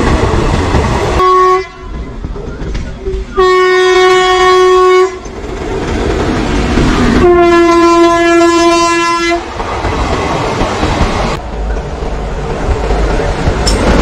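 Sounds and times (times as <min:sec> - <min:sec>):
locomotive horn blasts: 0:01.2 - 0:01.9, 0:03.3 - 0:05.3, 0:07.2 - 0:09.4
train coaches clattering over rail joints: 0:01.8 - 0:03.4, 0:09.5 - 0:14.0.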